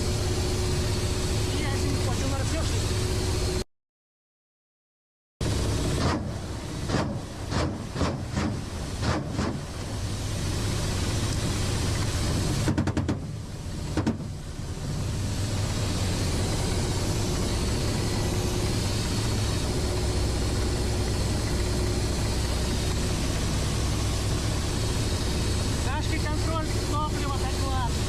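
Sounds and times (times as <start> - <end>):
helicopter engine and rotor drone: 0.0 - 3.6, 9.0 - 28.0.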